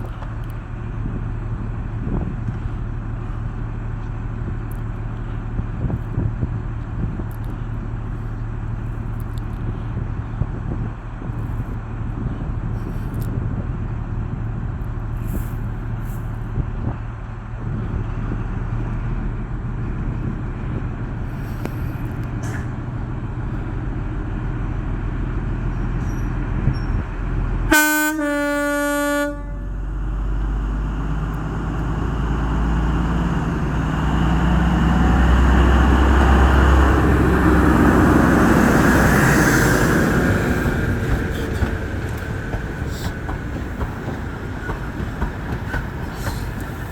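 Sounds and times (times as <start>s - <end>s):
low diesel hum: 0.0s - 46.9s
train engine and running noise: 0.0s - 46.9s
two-tone train horn: 27.7s - 30.0s.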